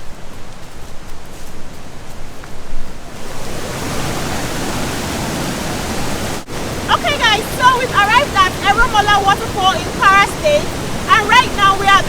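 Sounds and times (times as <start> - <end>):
waterfall rushing: 3.0 - 12.0.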